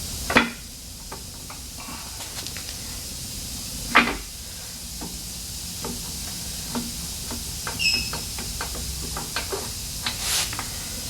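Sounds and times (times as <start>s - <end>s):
steady hiss: 0.0s - 11.0s
brief squeak: 7.8s - 8.1s.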